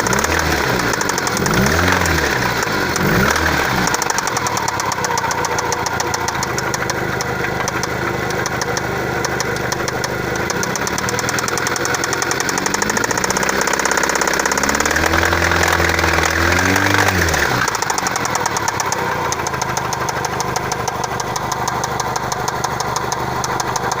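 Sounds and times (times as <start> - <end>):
car engine idling and revving: 0.0 - 24.0
engine ticking knock: 0.0 - 24.0.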